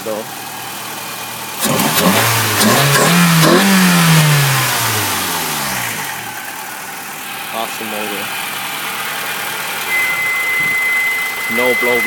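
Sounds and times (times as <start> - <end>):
car engine revving: 0.5 - 7.6, 8.2 - 11.8.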